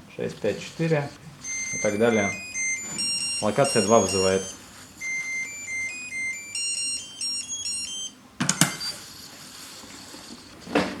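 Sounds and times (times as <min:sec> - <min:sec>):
pager electronic beep melody: 0:00.6 - 0:09.3.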